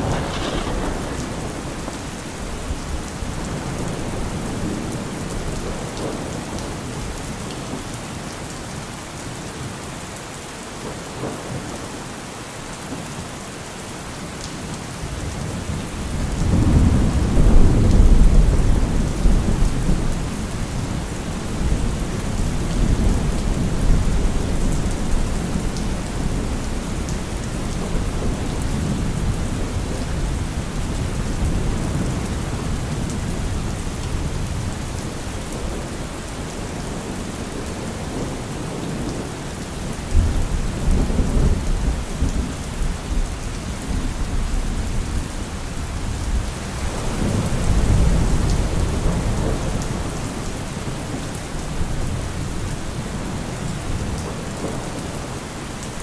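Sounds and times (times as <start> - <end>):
thunder rumbling: 0.0 - 6.2, 15.2 - 55.4
thunderclap: 0.0 - 6.2
heavy rain: 0.0 - 56.0.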